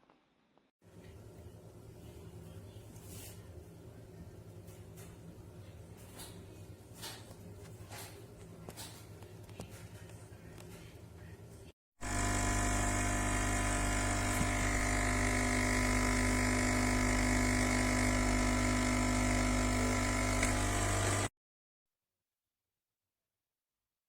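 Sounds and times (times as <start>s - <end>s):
espresso machine pump humming: 12.0s - 21.3s.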